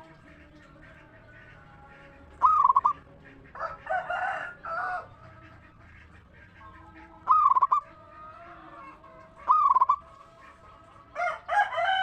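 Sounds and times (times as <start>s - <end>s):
dove cooing: 2.4s - 3.0s, 7.2s - 7.9s, 9.4s - 10.1s.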